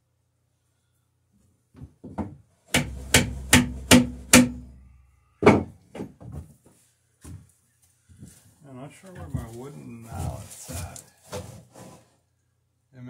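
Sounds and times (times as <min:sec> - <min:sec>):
hammer blows on wood: 0:02.7 - 0:05.8.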